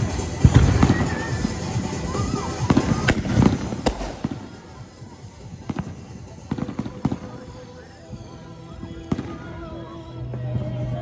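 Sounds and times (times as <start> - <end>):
fireworks popping and crackling: 0.0 - 8.4
sharp firework bangs: 3.0 - 5.3.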